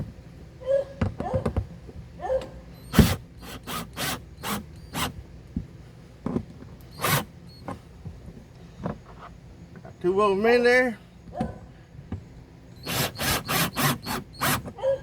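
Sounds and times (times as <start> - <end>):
power driver driving screws: 2.9 - 5.2, 6.9 - 7.3, 12.8 - 14.8.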